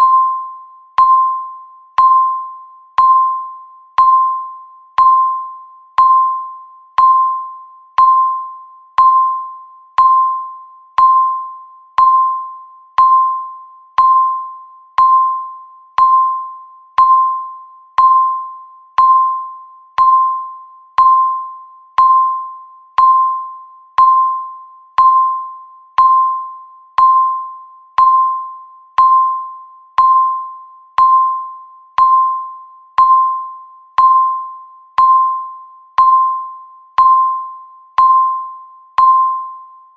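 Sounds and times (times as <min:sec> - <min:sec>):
timer electronic beeps: 0:00.0 - 0:39.9.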